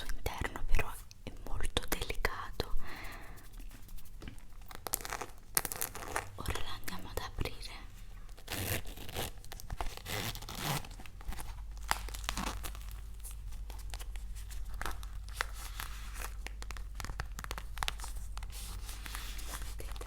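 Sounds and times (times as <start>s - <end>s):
faint low hum: 0.0s - 20.0s
packaging crinkling: 4.7s - 6.4s, 8.4s - 20.0s
packaging tearing: 8.4s - 20.0s.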